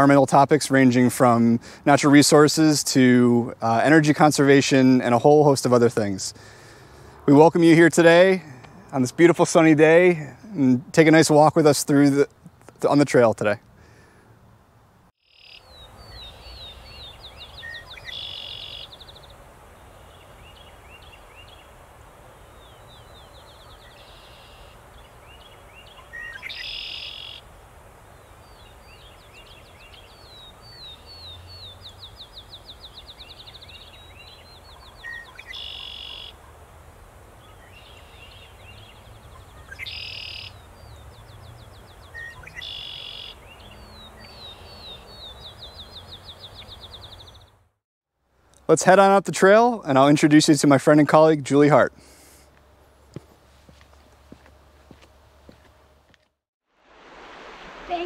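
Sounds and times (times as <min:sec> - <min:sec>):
faint outdoor background hum: 0:00.0 - 0:56.4
songbird singing: 0:15.2 - 0:36.7, 0:37.3 - 0:47.7.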